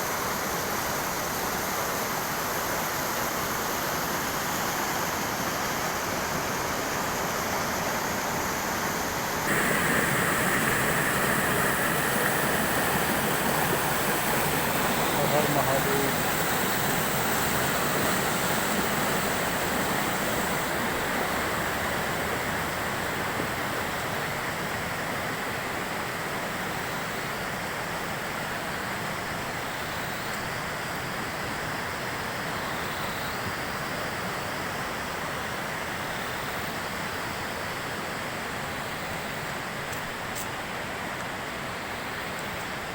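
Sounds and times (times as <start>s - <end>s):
river and waterfall rushing: 0.7s - 29.4s.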